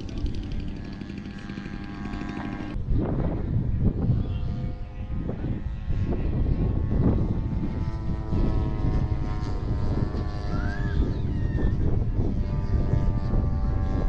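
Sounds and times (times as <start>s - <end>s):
model airplane engine droning: 0.0s - 14.0s.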